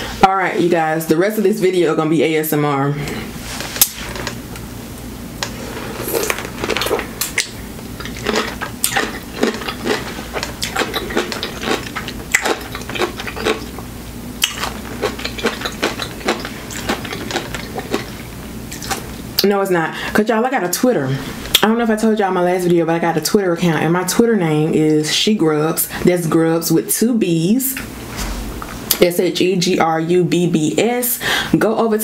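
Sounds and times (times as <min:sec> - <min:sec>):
pickle crunching while chewed: 0:06.0 - 0:19.1.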